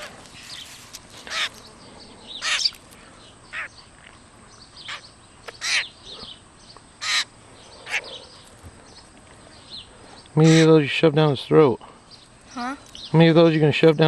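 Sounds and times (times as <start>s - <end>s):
grackle harsh calls: 0.0s - 10.9s.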